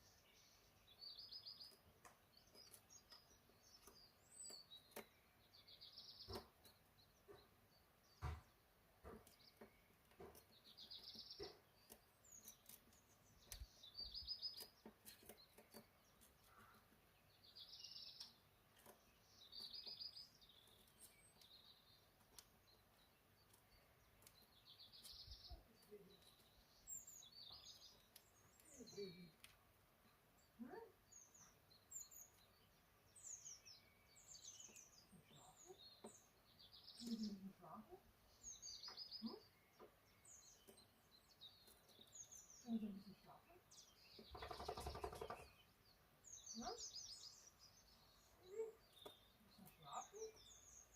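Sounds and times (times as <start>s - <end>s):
small birds chirping: 0.0s - 50.9s
faint clicks: 27.7s - 29.6s.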